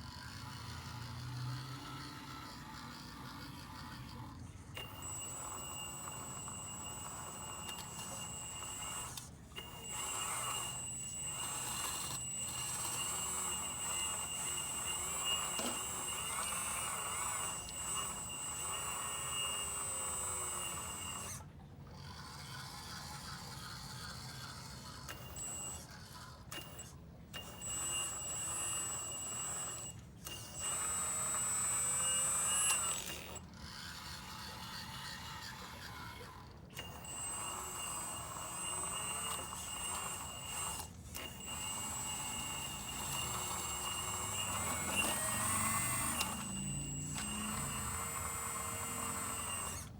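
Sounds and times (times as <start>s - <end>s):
hydraulic pump whining: 3.9s - 21.4s, 25.1s - 49.9s
rough mechanical running noise: 32.7s - 49.9s.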